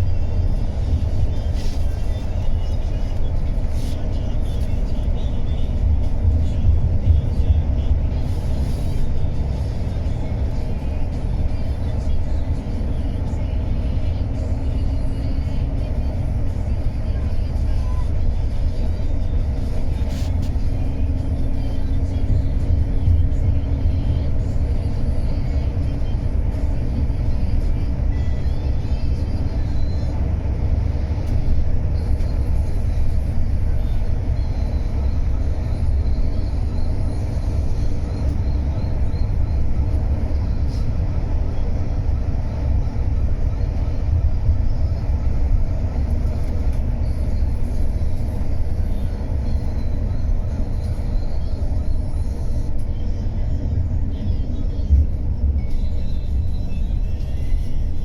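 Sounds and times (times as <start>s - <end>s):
bus engine rumble: 0.0s - 58.0s
road noise: 0.0s - 58.0s.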